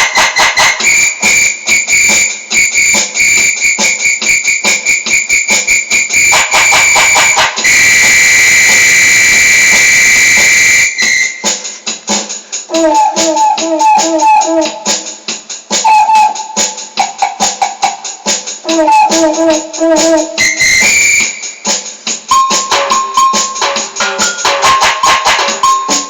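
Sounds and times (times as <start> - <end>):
rapid high keyboard notes: 0.0 - 26.0
held high keyboard tone: 12.7 - 14.9, 15.8 - 21.6, 22.3 - 26.0.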